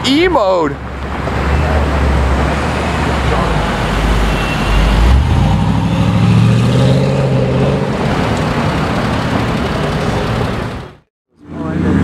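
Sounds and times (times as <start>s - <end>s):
traffic noise: 0.0s - 12.0s
car engine running: 7.9s - 11.0s.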